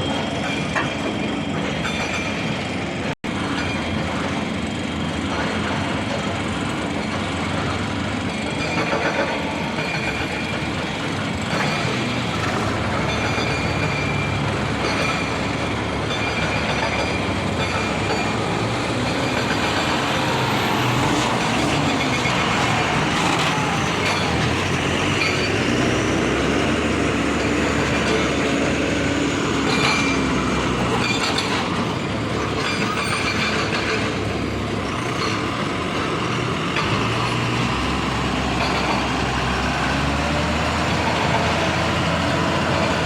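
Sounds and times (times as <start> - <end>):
heavy truck engine drone: 0.0 - 43.0.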